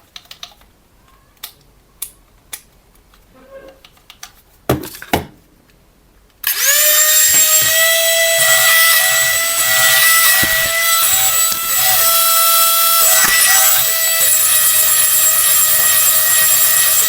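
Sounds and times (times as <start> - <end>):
small electric motor whining: 6.5 - 17.0.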